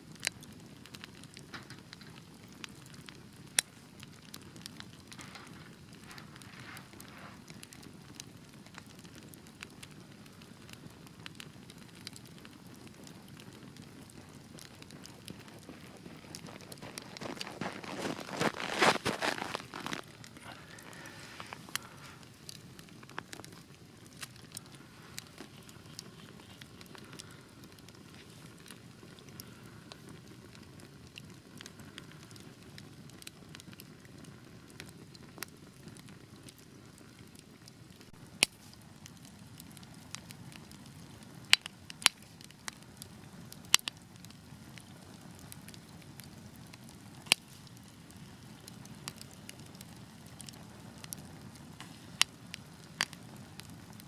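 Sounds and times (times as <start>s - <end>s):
loud sharp pops of fire: 0.0s - 54.0s
wood fire crackling: 0.0s - 54.0s
fire flames rushing: 0.3s - 34.9s, 38.2s - 54.0s.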